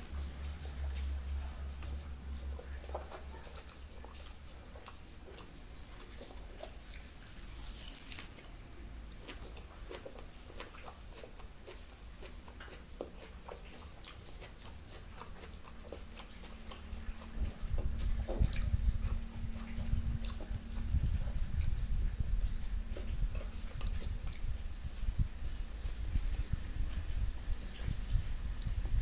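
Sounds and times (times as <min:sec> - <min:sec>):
chewing and biting food: 0:00.0 - 0:29.0
wet mouth clicks: 0:09.2 - 0:22.1.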